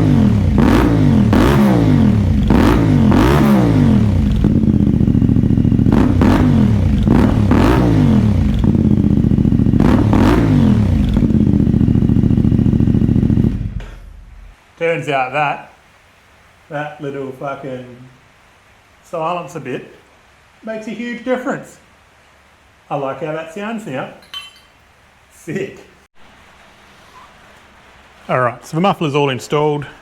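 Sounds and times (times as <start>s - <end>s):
motorcycle engine revving: 0.0s - 14.6s.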